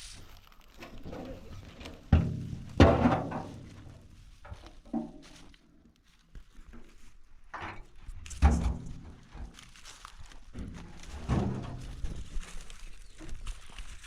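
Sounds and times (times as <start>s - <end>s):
thuds and knocks: 2.0s - 4.0s, 10.5s - 12.4s.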